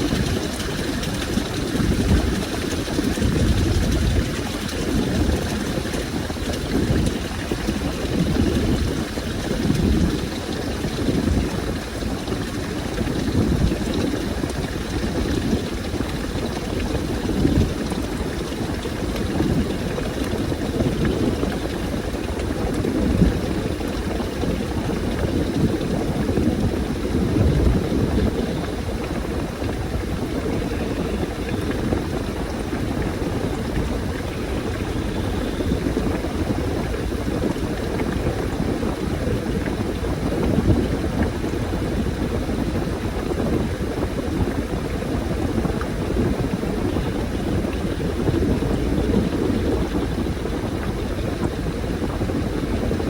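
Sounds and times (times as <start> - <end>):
washing machine running: 0.0 - 53.0
water sloshing in washing machine: 0.0 - 53.0.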